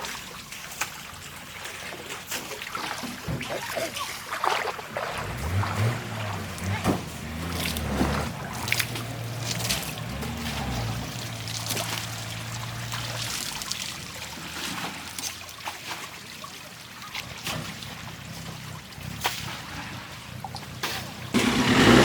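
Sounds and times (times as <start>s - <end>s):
water trickling and splashing: 0.0s - 22.0s
low diesel engine hum: 5.1s - 15.2s, 17.8s - 22.0s.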